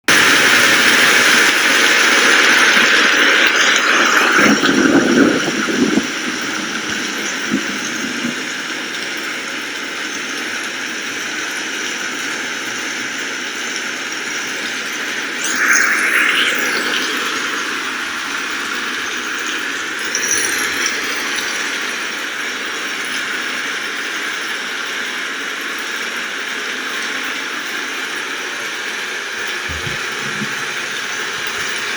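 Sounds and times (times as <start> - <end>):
steady rain falling: 0.1 - 15.5, 17.4 - 31.9
low rough patter: 29.6 - 31.9.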